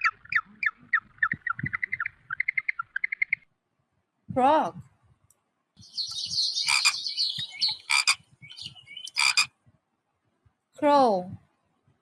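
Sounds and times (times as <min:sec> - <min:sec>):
frog sharp calls: 0:06.0 - 0:08.2, 0:09.0 - 0:09.5
frog trilling: 0:06.5 - 0:08.2, 0:09.1 - 0:09.5.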